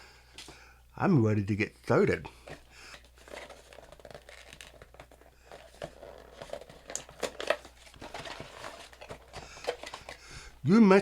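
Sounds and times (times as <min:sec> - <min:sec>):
wrapper crinkling and tearing: 0:03.0 - 0:10.2.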